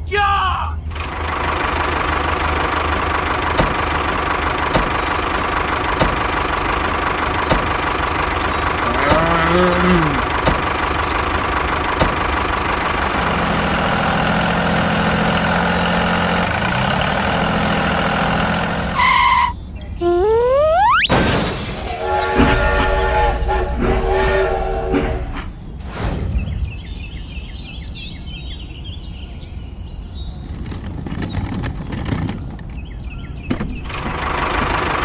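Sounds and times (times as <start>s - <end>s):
tractor engine running: 0.8s - 20.6s, 21.9s - 25.7s, 30.4s - 35.0s
low engine note: 0.9s - 21.1s, 21.9s - 25.8s.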